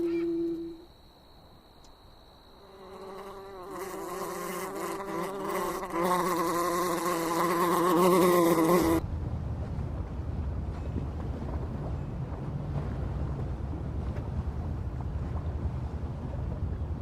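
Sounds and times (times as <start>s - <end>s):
insect wings buzzing: 2.4s - 9.0s
low rumbling noise: 9.0s - 17.0s.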